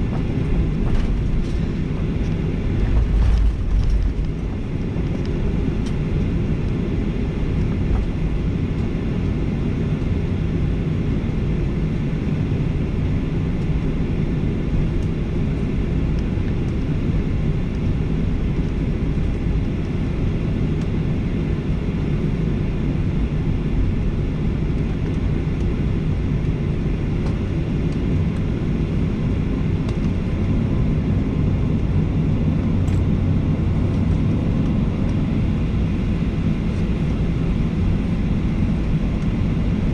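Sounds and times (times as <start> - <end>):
airframe rumble: 0.0 - 6.5
jet engines at low power: 0.0 - 39.9.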